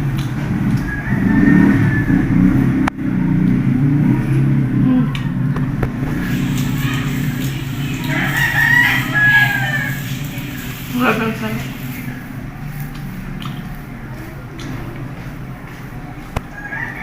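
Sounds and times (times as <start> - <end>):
road traffic rumble: 0.0 - 17.0
rooster crowing: 0.8 - 2.7, 6.8 - 10.6, 16.5 - 17.0.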